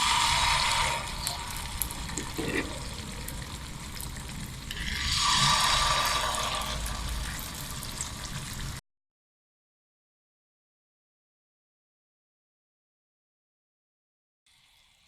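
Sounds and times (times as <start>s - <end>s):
batter sizzling in hot oil: 0.0s - 8.8s, 14.5s - 15.0s.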